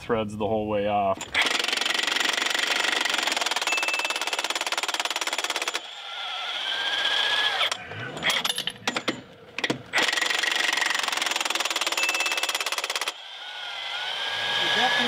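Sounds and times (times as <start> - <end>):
impact wrench hammering: 7.6 - 13.2
metal clanks: 7.7 - 10.0.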